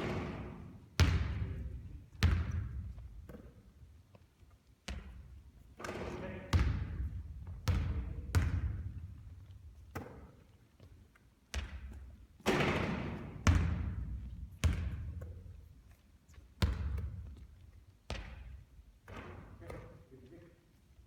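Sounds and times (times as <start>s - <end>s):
basketball thudding on hard court: 0.0s - 3.6s, 4.9s - 5.2s, 5.8s - 9.0s, 11.5s - 15.5s, 16.6s - 17.4s.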